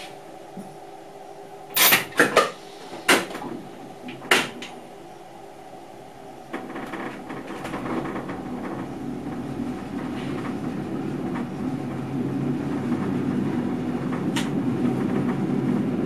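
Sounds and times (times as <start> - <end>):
knocks and clunks in train cab: 2.0 - 4.8, 6.5 - 16.0
train wheels rumbling on rails: 6.5 - 16.0.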